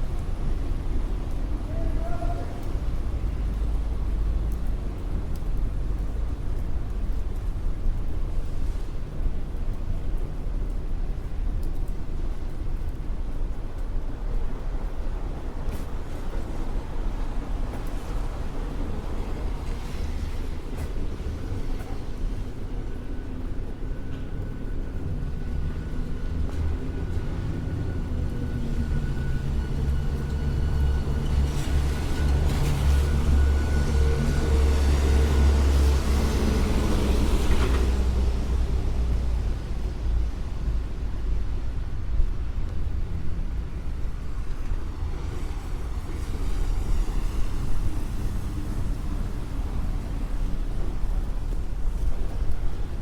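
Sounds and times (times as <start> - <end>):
low traffic rumble: 0.0 - 53.0.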